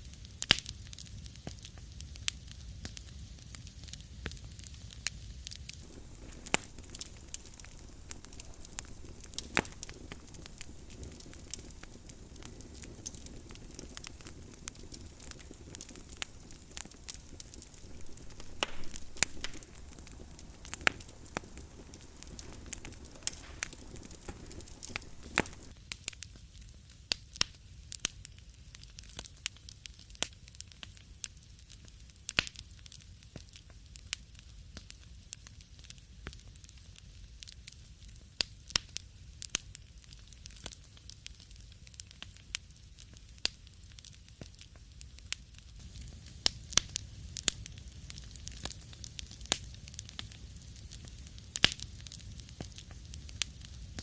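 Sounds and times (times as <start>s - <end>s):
wood fire crackling: 0.0s - 26.5s, 28.0s - 54.0s
background hiss: 5.3s - 25.7s, 45.6s - 54.0s.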